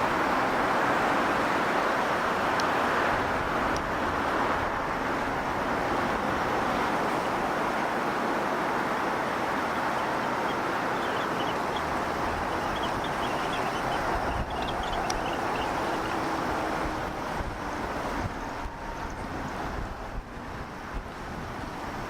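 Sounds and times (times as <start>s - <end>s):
steady rushing outdoor noise: 0.0s - 22.0s
faint high chirps: 10.4s - 11.9s, 12.5s - 16.2s.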